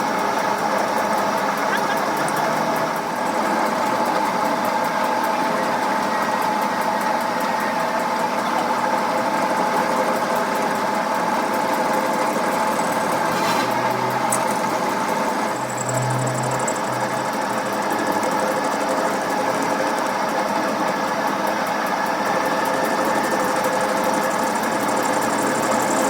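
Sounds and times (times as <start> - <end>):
workshop machine humming: 0.0 - 26.0.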